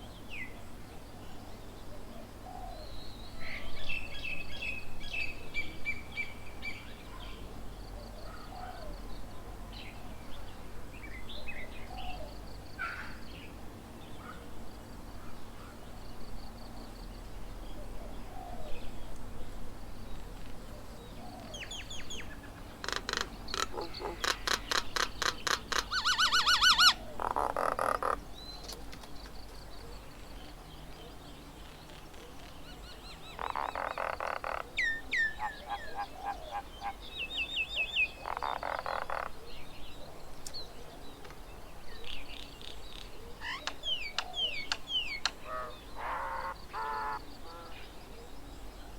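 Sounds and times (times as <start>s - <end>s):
bird rattling calls: 22.8s - 28.2s.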